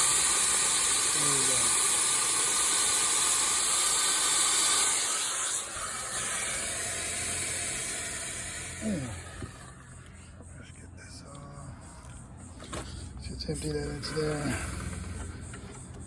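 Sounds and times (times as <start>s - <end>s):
pressurised gas hissing: 0.0s - 10.2s, 13.6s - 15.6s.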